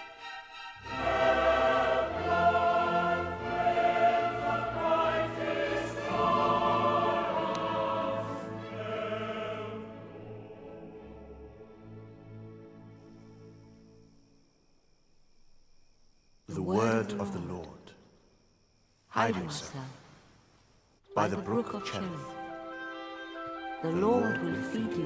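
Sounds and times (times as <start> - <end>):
orchestral music: 0.0 - 13.6
choir singing sustained chords: 0.0 - 14.7.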